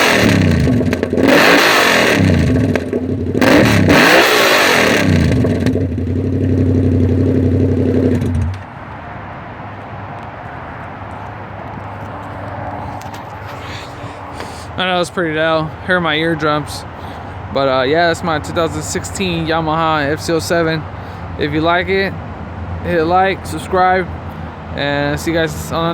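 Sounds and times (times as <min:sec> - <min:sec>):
loud motorcycle engine revving: 0:00.0 - 0:08.6.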